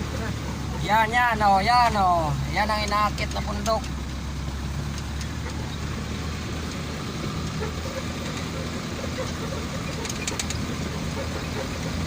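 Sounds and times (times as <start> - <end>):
road noise: 0.0 - 12.0
truck engine running: 0.0 - 12.0.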